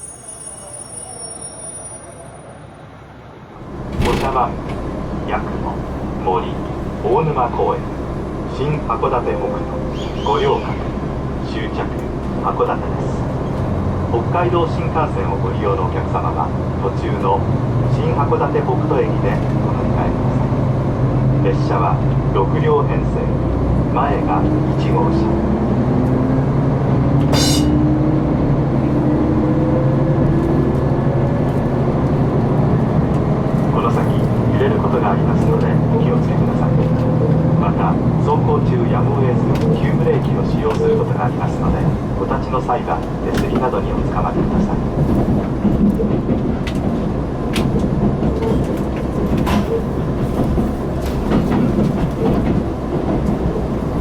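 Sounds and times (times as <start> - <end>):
train engine rumble: 0.0 - 54.0
brief high-pitched sound: 27.3 - 27.9.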